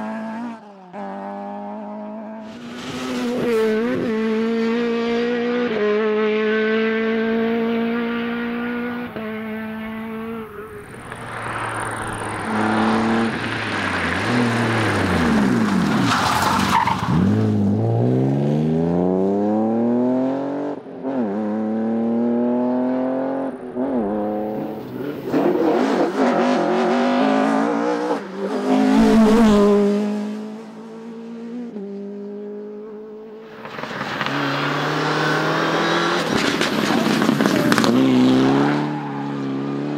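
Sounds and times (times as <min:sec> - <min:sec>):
rally car engines revving: 0:00.0 - 0:39.9
tyres skidding on loose surface: 0:10.5 - 0:17.6, 0:33.5 - 0:39.2.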